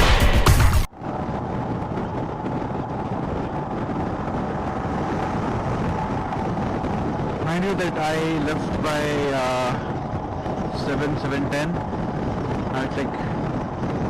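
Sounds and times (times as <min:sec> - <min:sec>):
background music: 0:00.0 - 0:00.9
wind on microphone: 0:00.0 - 0:14.0.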